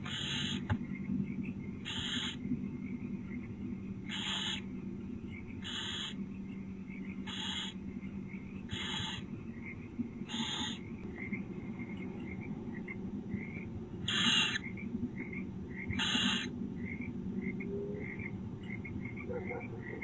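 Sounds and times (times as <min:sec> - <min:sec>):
owl hissing: 0:00.0 - 0:00.8, 0:01.8 - 0:02.4, 0:04.0 - 0:04.7, 0:05.6 - 0:06.2, 0:07.2 - 0:07.8, 0:08.7 - 0:09.3, 0:10.3 - 0:10.9, 0:14.0 - 0:14.7, 0:15.8 - 0:16.5
faint high twittering: 0:00.0 - 0:20.0
steady low hum: 0:00.0 - 0:20.0.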